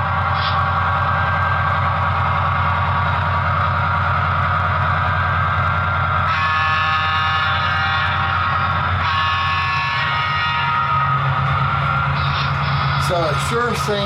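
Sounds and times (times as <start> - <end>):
bright higher engine layer: 0.0 - 14.0
diesel locomotive engine running: 0.0 - 14.0.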